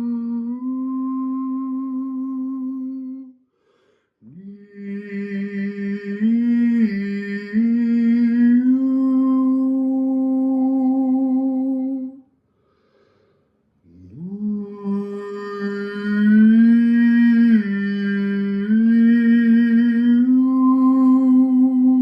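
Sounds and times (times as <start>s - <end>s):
man humming: 0.0s - 3.2s, 13.9s - 22.0s.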